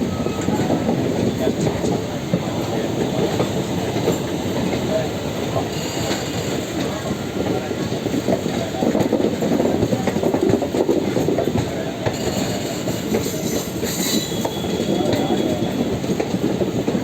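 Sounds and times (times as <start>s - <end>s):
train wheels rumbling: 0.0s - 17.0s
high wheel squeal: 5.5s - 6.8s, 12.1s - 16.1s.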